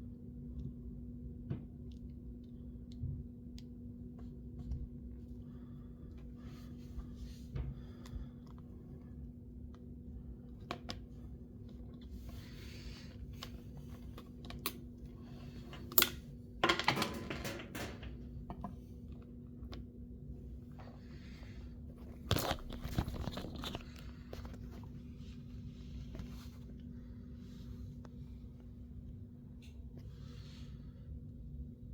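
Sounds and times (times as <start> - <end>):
steady low hum: 0.0 - 31.9
packaging crinkling: 22.0 - 24.9.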